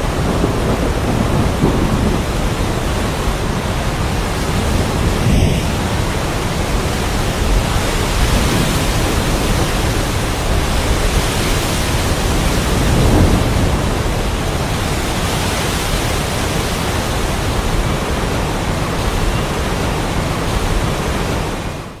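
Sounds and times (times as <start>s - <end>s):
low rumble: 0.0s - 15.0s
heavy rain: 0.0s - 22.0s
wind: 0.0s - 22.0s.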